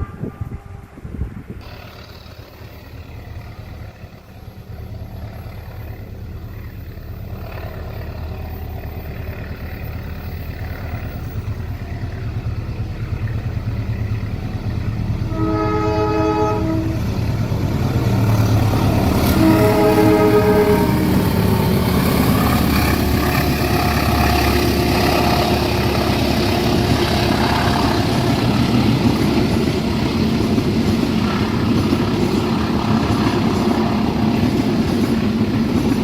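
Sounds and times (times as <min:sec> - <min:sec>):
locomotive horn blast: 0:00.0 - 0:01.8, 0:15.2 - 0:17.3, 0:18.6 - 0:28.9
train rumble: 0:00.0 - 0:36.0.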